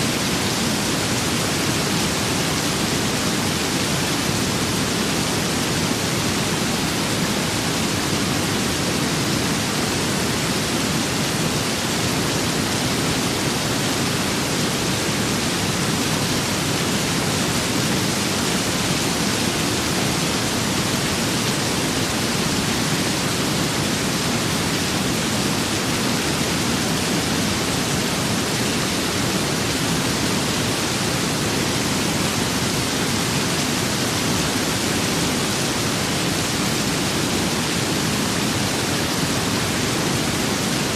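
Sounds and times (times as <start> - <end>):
rain and wind hiss: 0.0 - 40.9.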